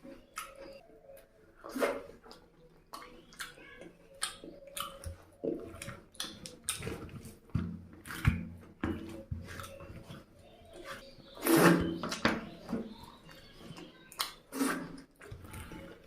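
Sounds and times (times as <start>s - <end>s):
chewing and mouth smacks: 0.3s - 8.5s, 9.1s - 10.8s, 14.1s - 16.0s.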